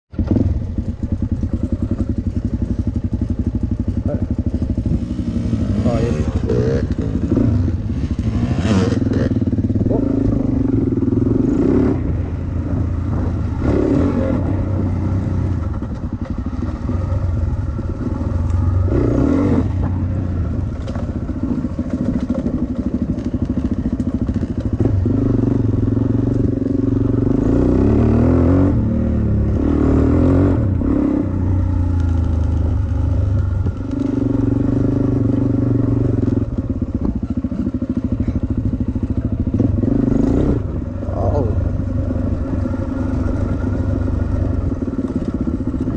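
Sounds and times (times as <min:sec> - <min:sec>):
dirt bike engine revving: 0:00.1 - 0:22.8, 0:23.5 - 0:45.9
rattling and clatter: 0:20.7 - 0:25.6.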